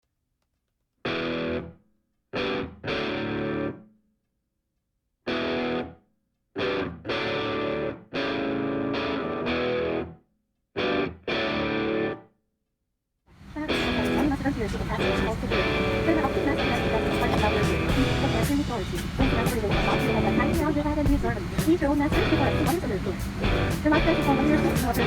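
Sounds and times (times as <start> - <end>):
distorted electric guitar chords: 1.1 - 1.7, 2.4 - 3.8, 5.3 - 5.9, 6.6 - 10.2, 10.8 - 12.2, 13.7 - 25.0.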